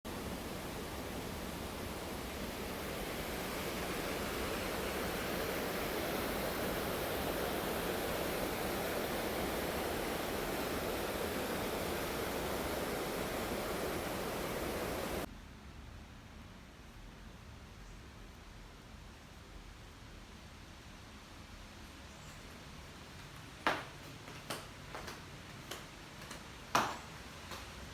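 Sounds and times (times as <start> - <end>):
waterfall rushing: 0.1 - 15.3
faint hiss: 0.1 - 27.9.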